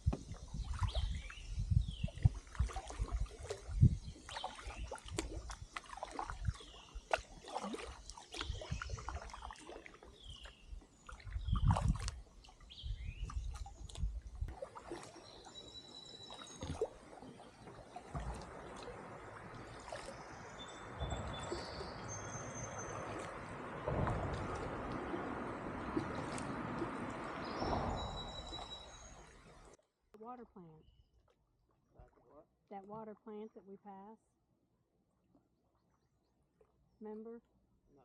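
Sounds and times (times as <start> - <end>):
paddles knocking and splashing: 0.0 - 1.3, 1.9 - 29.8
birds chirping: 3.4 - 14.4, 15.0 - 29.8.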